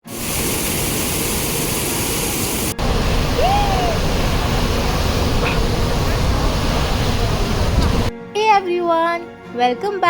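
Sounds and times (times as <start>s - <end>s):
waterfall rushing: 0.1s - 8.1s
rising and falling call: 2.7s - 7.6s.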